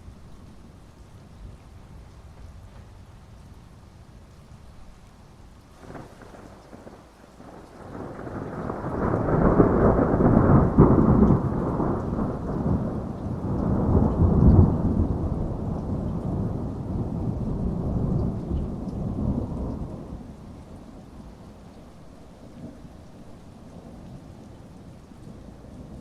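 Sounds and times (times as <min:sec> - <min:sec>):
steady rain: 0:00.0 - 0:26.0
rolling thunder: 0:05.8 - 0:21.6.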